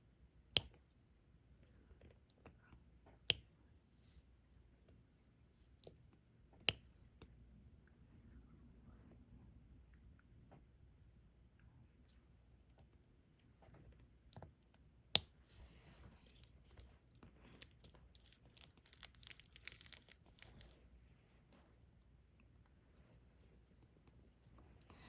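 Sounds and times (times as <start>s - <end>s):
small plastic clicks and rattling: 17.6s - 20.8s.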